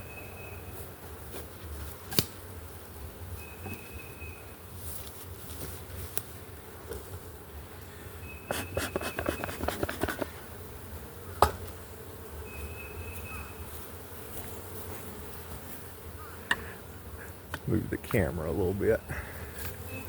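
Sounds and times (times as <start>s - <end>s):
honey bees buzzing: 6.3s - 20.0s.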